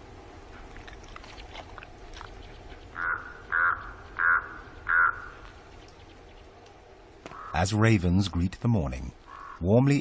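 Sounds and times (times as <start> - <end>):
ravens cawing: 3.0 - 5.5, 7.2 - 7.7, 9.2 - 9.7.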